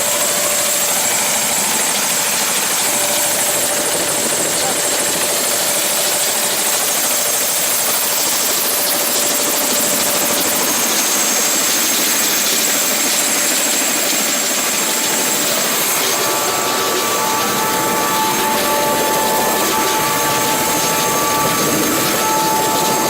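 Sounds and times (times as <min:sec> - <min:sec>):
faint steady whine: 0:00.0 - 0:23.0
helicopter rotor and engine noise: 0:00.0 - 0:23.0.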